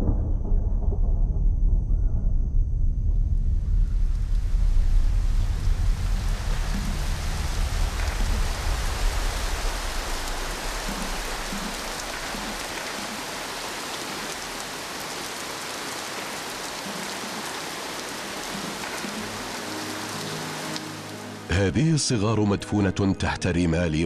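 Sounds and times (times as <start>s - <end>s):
low rumble: 0.0s - 12.8s
steady rain falling: 3.6s - 21.6s.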